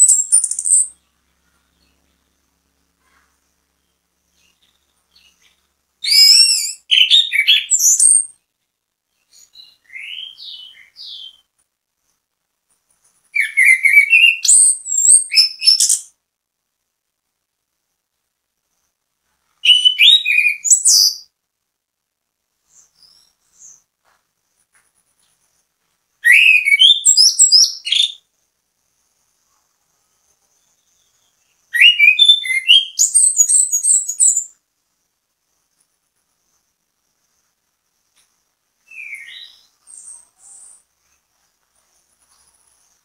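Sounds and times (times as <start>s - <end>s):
thrush singing whistled notes: 4.4s - 8.4s, 9.3s - 11.5s, 13.4s - 16.2s, 19.6s - 21.3s, 26.2s - 28.3s, 31.4s - 34.6s, 38.8s - 40.8s.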